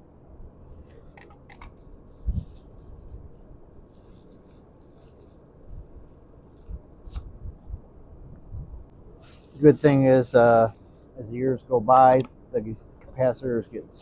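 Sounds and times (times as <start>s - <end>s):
light rustling and scraping: 0.7s - 7.4s, 9.1s - 11.3s.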